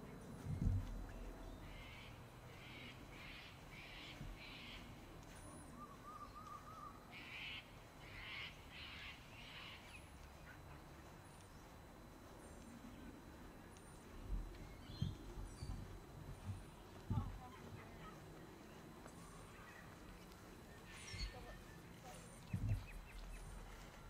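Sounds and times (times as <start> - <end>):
faint high bird chirps: 1.1 - 10.6, 16.7 - 24.0.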